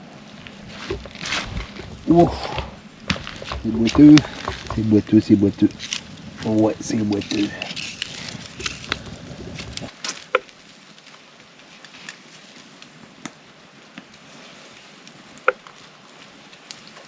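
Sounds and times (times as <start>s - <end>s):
rain pattering: 0.0s - 10.0s.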